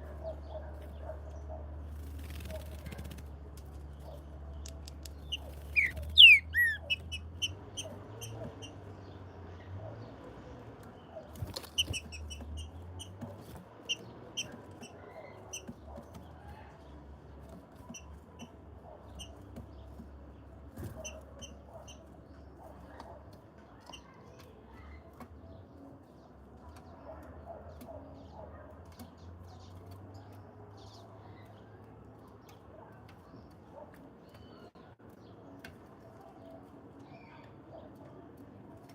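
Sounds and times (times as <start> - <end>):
small birds chirping: 0.0 - 38.9
sharp clicks: 4.5 - 7.2.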